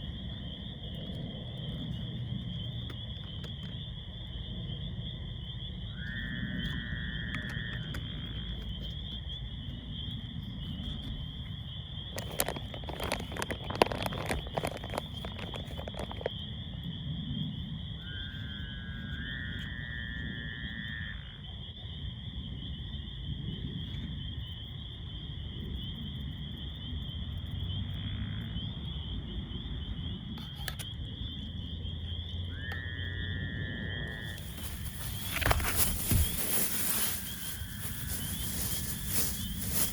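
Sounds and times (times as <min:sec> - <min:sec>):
crickets chirping: 0:00.0 - 0:39.9
crackles: 0:12.1 - 0:16.4, 0:34.1 - 0:39.9.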